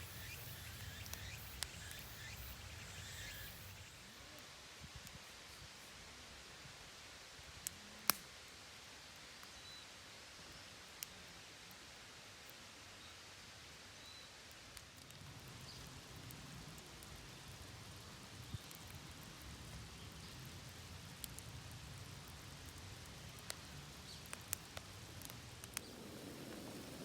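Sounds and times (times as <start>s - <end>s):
wood crackles: 0.0s - 4.1s, 14.5s - 27.0s
campfire hissing: 0.0s - 9.5s, 14.4s - 27.0s.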